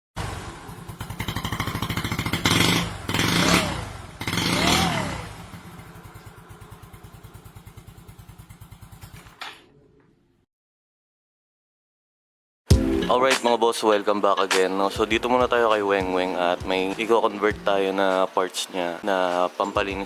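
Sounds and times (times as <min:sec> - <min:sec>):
motorcycle engine revving: 0:00.2 - 0:09.4.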